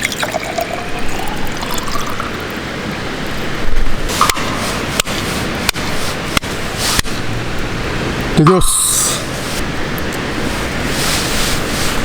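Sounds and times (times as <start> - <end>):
liquid pouring into container: 0.0 - 2.7
sharp knocks: 4.1 - 5.8.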